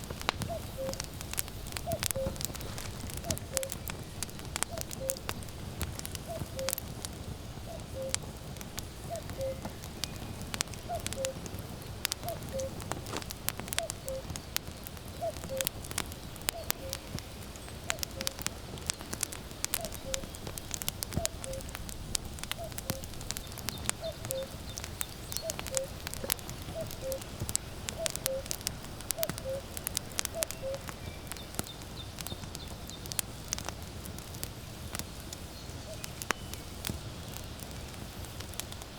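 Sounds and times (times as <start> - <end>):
wood fire crackling and popping: 0.0 - 38.9
cuckoo calling: 0.4 - 3.8, 4.6 - 5.4, 6.2 - 6.9, 7.6 - 8.3, 9.0 - 11.5, 12.2 - 12.9, 13.7 - 15.8, 16.5 - 17.2, 17.9 - 18.5, 19.7 - 20.4, 21.1 - 21.7, 22.5 - 31.5.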